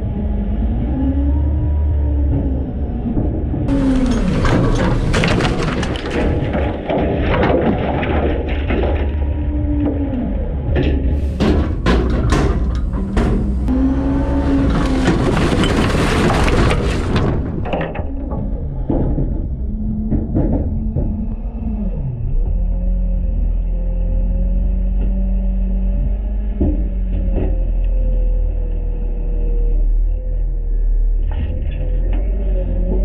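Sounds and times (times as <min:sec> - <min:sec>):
garbage truck engine rumbling: 0:00.0 - 0:33.0
sharp cracks and bangs: 0:03.7 - 0:09.3, 0:11.3 - 0:18.4
refuse crashing in hopper: 0:03.7 - 0:09.6, 0:11.0 - 0:19.4.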